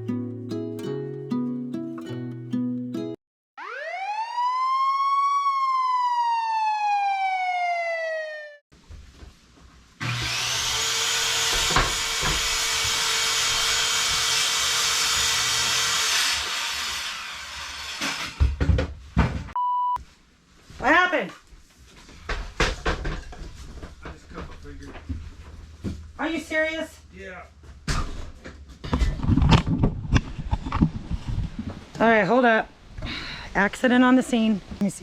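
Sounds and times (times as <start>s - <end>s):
siren wail: 3.6s - 8.6s.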